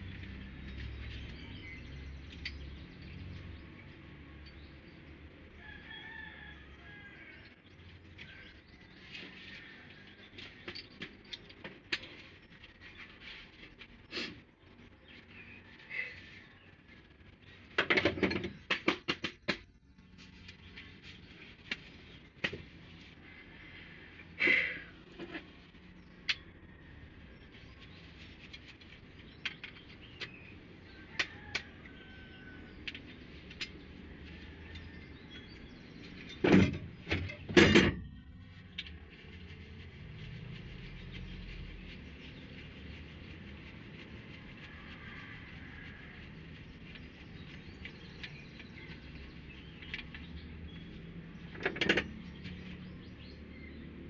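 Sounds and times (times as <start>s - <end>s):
hand tools and metal parts clattering: 8.0s - 14.4s, 17.6s - 22.8s, 28.0s - 40.0s, 46.9s - 52.9s.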